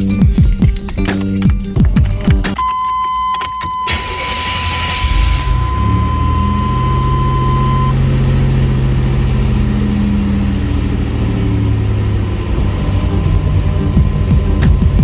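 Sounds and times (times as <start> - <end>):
car engine idling: 3.9 - 15.0.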